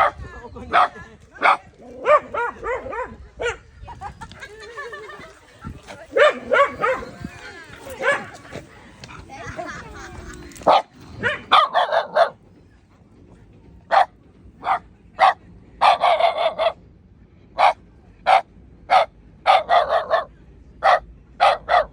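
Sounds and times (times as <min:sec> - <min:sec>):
dog barking: 0:00.0 - 0:03.6, 0:06.2 - 0:07.2, 0:08.0 - 0:08.4, 0:10.7 - 0:12.4, 0:13.9 - 0:16.8, 0:17.6 - 0:21.9.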